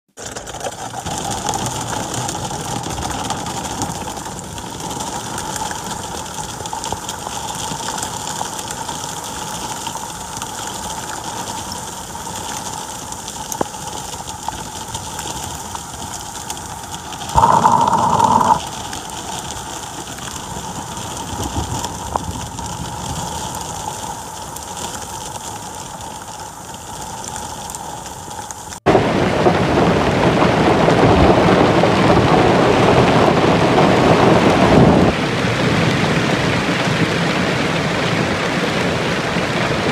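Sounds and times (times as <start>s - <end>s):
downpour on paved street: 0.1s - 39.9s
heavy rain hissing: 11.4s - 30.1s
loud tone: 17.4s - 18.6s.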